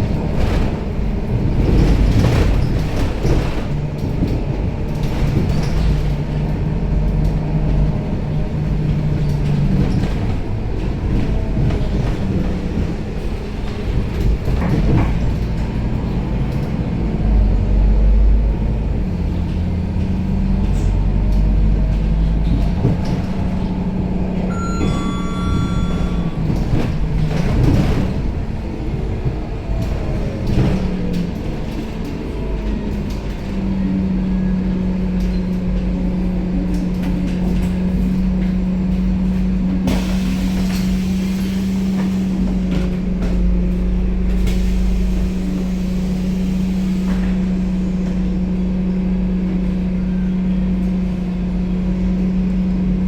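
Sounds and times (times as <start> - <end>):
bus engine humming: 0.0 - 53.0
short electronic chime: 24.5 - 26.9.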